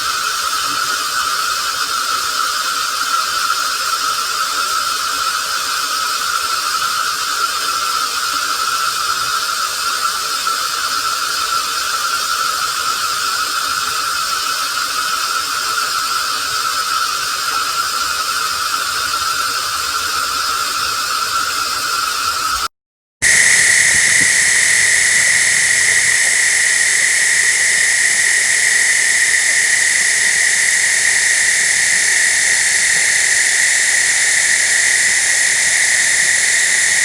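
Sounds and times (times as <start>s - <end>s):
processed running water rush: 0.0s - 37.0s
constant whine: 23.2s - 37.0s.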